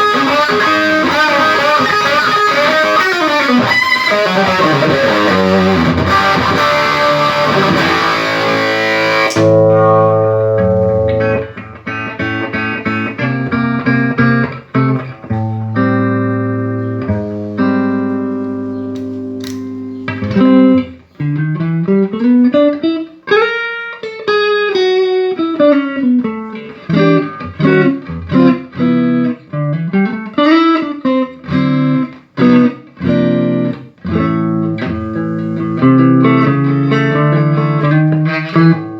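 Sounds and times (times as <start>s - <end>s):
electric guitar through amplifier: 0.0s - 38.9s.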